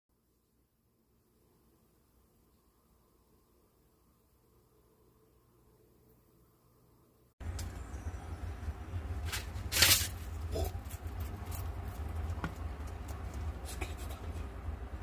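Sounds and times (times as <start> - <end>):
steady low rumble: 7.4 - 15.0
scratching and rustling: 9.2 - 14.6.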